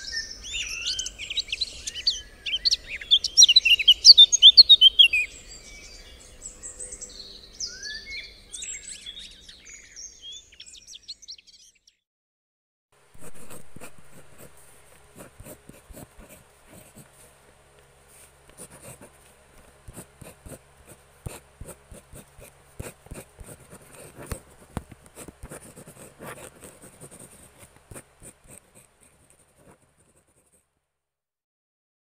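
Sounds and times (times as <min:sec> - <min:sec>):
pencil scratching on paper: 0:13.2 - 0:17.4, 0:18.1 - 0:19.3, 0:19.9 - 0:30.6.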